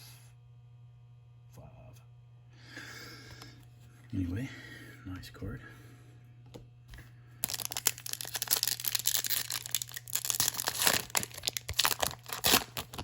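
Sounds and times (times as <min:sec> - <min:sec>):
foil wrapper tearing and crinkling: 0:07.4 - 0:13.0.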